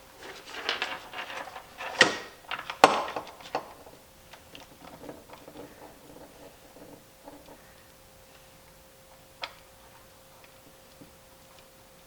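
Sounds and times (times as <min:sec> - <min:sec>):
parts clattering on workbench: 0:00.2 - 0:07.8.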